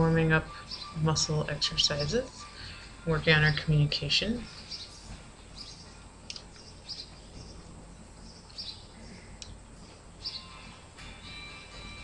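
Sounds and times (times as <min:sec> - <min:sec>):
low room hum: 0:00.0 - 0:12.0
small birds chirping: 0:00.5 - 0:02.2, 0:04.4 - 0:10.6.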